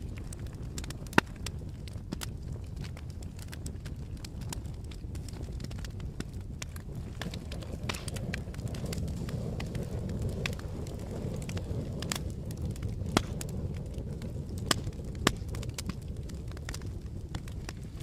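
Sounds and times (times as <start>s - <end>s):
campfire low rumble: 0.0s - 18.0s
wood crackles and sharp pops: 0.0s - 18.0s.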